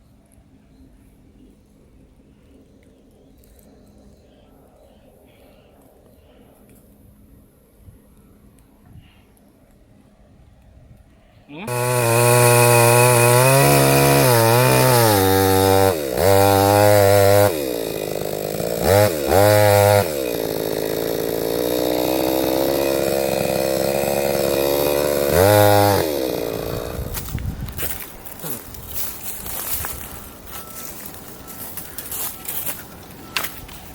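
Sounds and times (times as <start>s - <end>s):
chainsaw engine revving: 11.6s - 33.9s.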